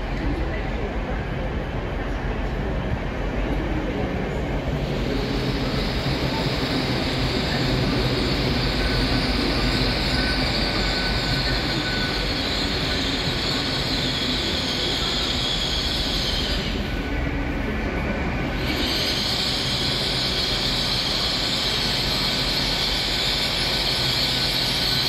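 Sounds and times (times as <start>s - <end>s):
train wheels rumbling on rail: 0.0s - 25.0s
faint wheel squeal: 5.4s - 17.0s, 18.5s - 25.0s.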